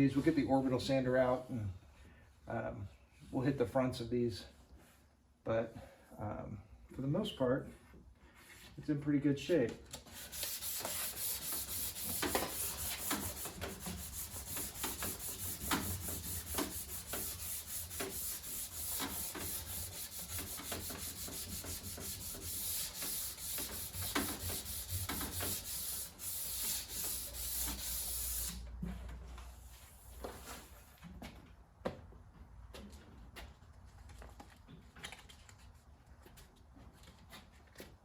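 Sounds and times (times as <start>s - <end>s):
sandpaper rubbing on wood: 10.1s - 28.6s.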